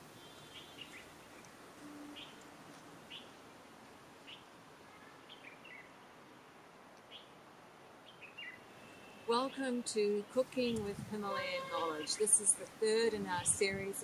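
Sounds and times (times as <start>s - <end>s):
low steady hiss: 0.0s - 14.0s
small birds chirping: 0.2s - 3.5s, 4.2s - 6.0s, 8.0s - 9.7s.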